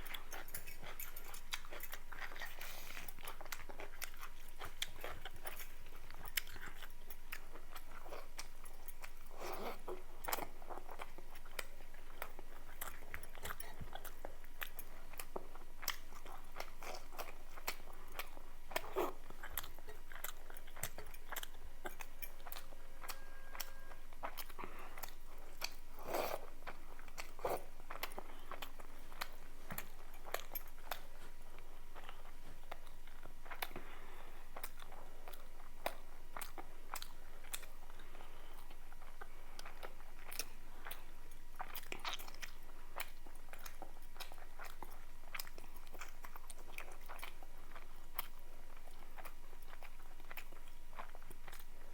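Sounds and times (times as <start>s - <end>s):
person chewing and biting: 0.0s - 33.8s.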